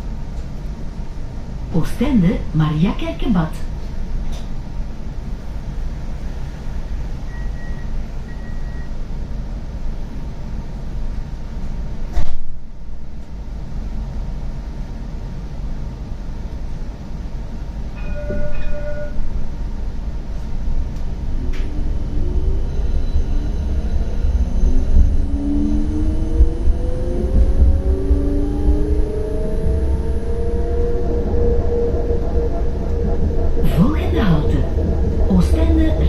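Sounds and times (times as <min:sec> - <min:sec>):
tram interior rumble: 0:00.0 - 0:36.0
tram motor whine rising: 0:17.4 - 0:36.0.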